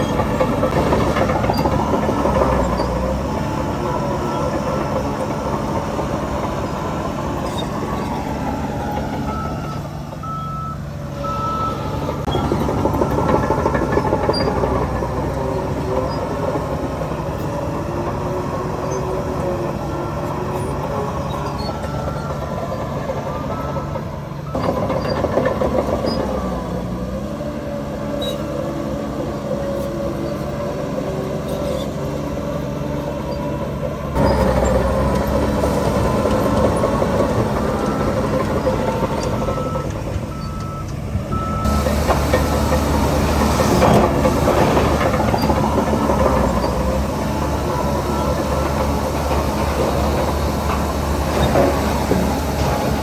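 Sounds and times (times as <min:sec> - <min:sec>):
heavy diesel machinery running: 0:00.0 - 0:53.0
reversing alarm beeping: 0:07.8 - 0:14.9, 0:20.5 - 0:26.4, 0:34.2 - 0:49.1.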